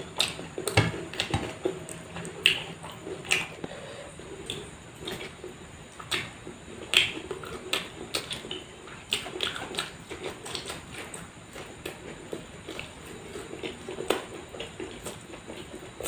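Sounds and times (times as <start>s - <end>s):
person chewing food: 0.0s - 16.0s
mouth clicks and smacks: 0.2s - 3.8s, 4.4s - 5.4s, 6.0s - 12.0s.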